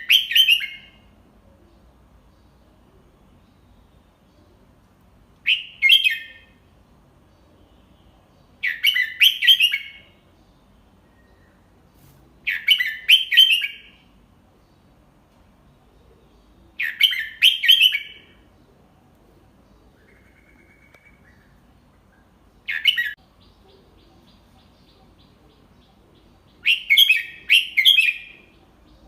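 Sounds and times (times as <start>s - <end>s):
bulbul singing: 15.8s - 18.8s, 19.5s - 29.0s.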